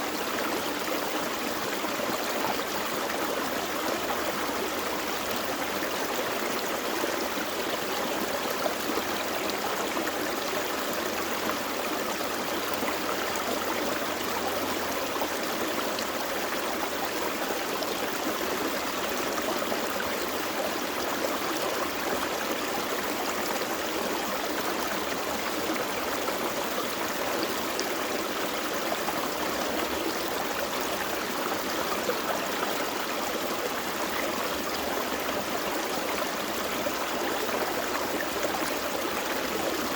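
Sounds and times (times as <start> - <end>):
creek flowing over rocks: 0.0 - 39.9.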